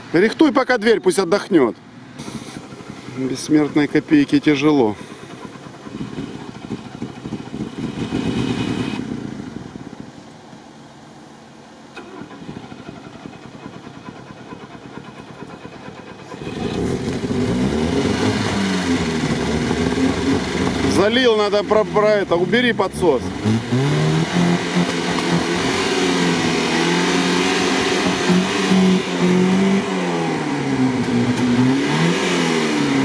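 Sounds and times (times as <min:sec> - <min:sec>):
car engine revving: 0:02.2 - 0:10.2, 0:11.9 - 0:33.0
engine cranking on starter: 0:11.9 - 0:22.1.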